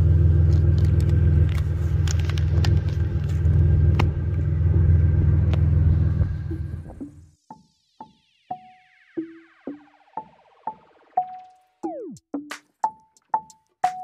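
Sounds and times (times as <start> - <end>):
car exhaust rumbling at idle: 0.0 - 7.2.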